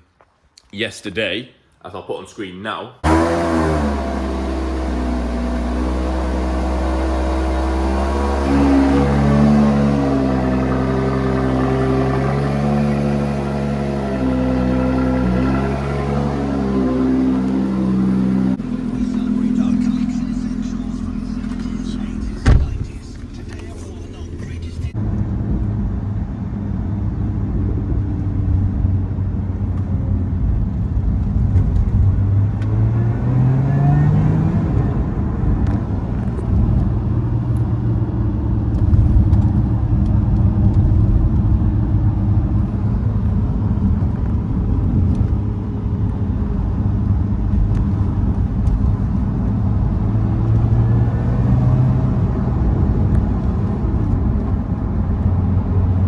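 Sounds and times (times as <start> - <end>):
car engine accelerating: 3.0 - 56.0.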